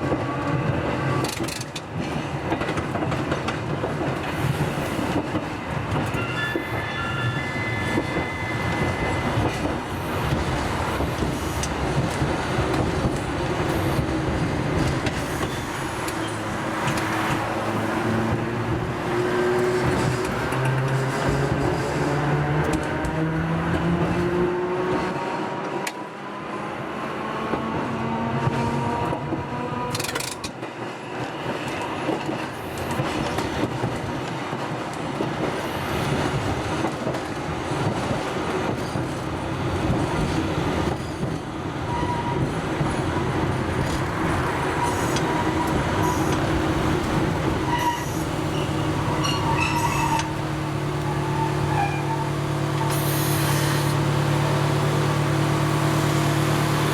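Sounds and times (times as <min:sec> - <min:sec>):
wheels rumbling on rails: 0:00.0 - 0:56.9
wheel squeals: 0:47.6 - 0:50.4, 0:51.0 - 0:54.0.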